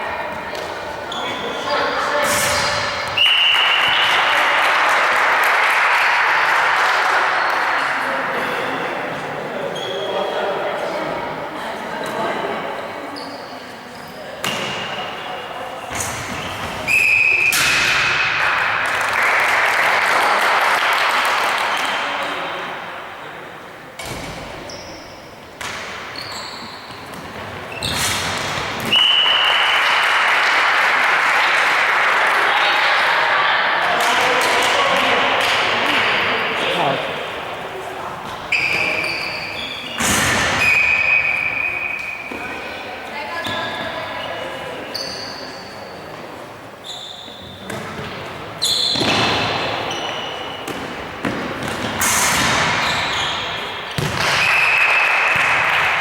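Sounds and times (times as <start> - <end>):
referee's whistle: 2.5 - 4.3, 16.9 - 17.6, 28.9 - 29.8, 38.5 - 42.4, 48.6 - 49.2
crowd applause and cheering: 3.2 - 8.0, 18.2 - 21.8, 29.0 - 37.4, 54.2 - 56.0
shoe squeaks: 13.1 - 14.8, 24.6 - 25.4, 26.1 - 28.2, 38.5 - 42.5, 43.4 - 46.1, 46.8 - 47.7, 48.6 - 49.3, 52.8 - 54.0.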